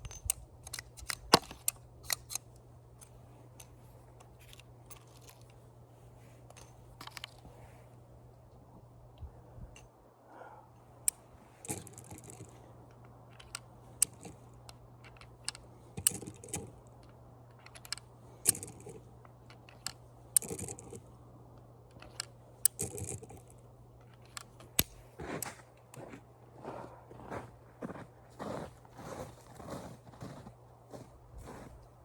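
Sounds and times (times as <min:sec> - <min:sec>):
sharp clicks of small objects: 0:11.1 - 0:21.0.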